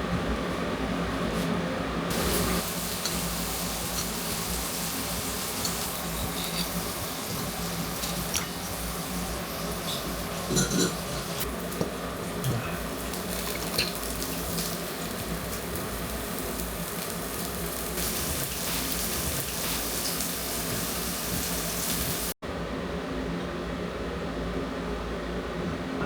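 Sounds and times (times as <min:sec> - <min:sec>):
steady hissing noise: 0:02.1 - 0:11.5.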